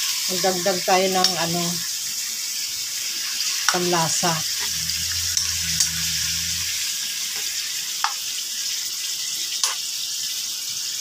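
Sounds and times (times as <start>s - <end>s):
chicken sizzling in a wok: 0.0s - 4.1s.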